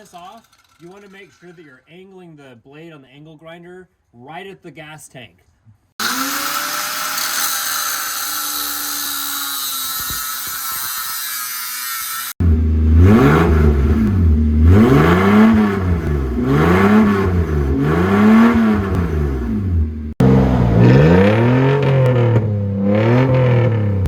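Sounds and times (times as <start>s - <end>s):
loud engine revving: 12.4s - 24.0s.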